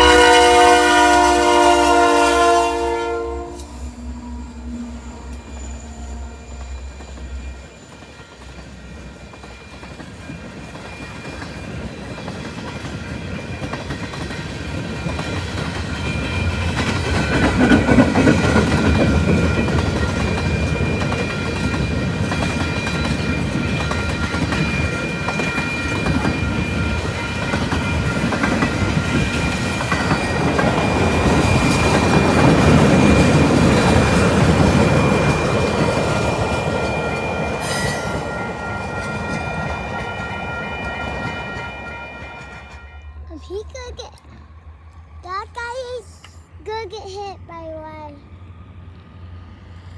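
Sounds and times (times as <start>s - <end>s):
train wheels rumbling on rails: 0.0s - 49.9s
high ringing tones: 29.0s - 43.3s.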